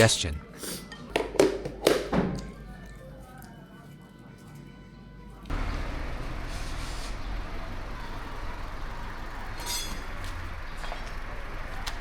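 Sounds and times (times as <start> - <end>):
outdoor rumble and hiss: 5.2 - 12.0
faint rattle: 5.5 - 12.0.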